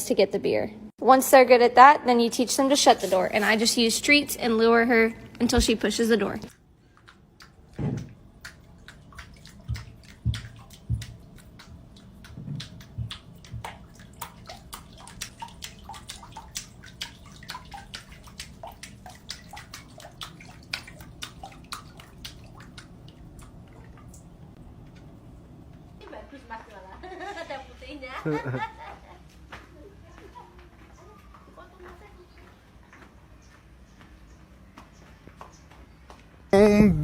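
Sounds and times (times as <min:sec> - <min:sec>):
water clicks and drips: 0:06.4 - 0:25.1.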